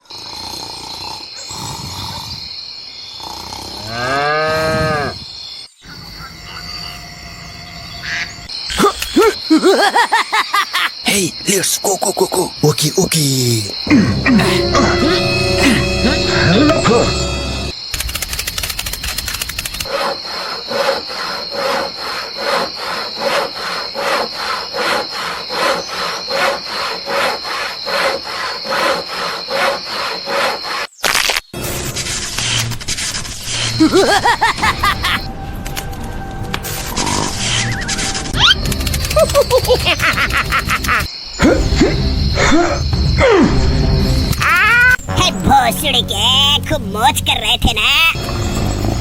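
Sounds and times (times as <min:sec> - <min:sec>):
loud croaking calls: 0:00.0 - 0:17.7, 0:19.8 - 0:30.9
insects chirping: 0:00.0 - 0:49.0
cow mooing: 0:03.8 - 0:05.2
steady high-pitched tone: 0:14.1 - 0:17.8
rhythmic scraping strokes: 0:14.4 - 0:17.8.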